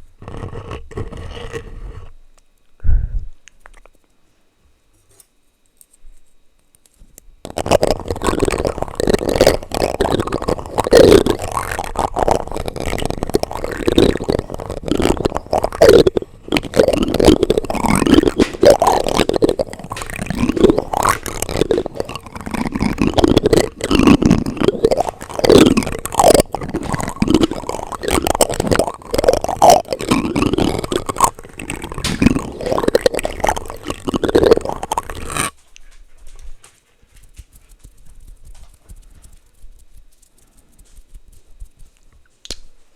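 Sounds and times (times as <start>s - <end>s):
plastic utensils scraping microphone: 0.0s - 2.2s, 7.5s - 35.5s.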